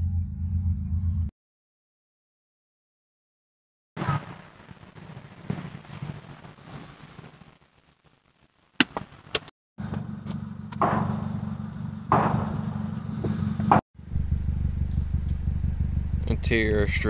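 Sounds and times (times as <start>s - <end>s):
car engine idling: 9.8s - 17.0s.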